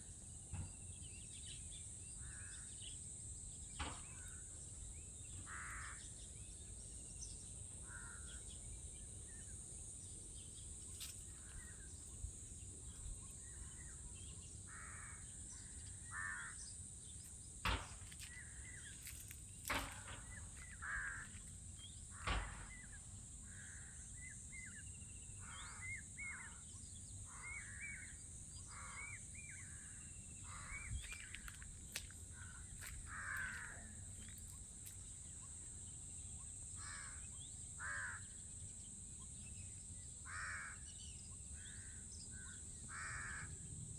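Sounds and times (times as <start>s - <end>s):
crows cawing: 5.4s - 6.2s, 7.8s - 8.5s, 14.7s - 16.7s, 17.8s - 21.6s, 22.2s - 24.0s, 28.7s - 34.5s, 36.8s - 37.2s, 37.8s - 38.3s, 40.3s - 40.8s, 41.8s - 43.6s.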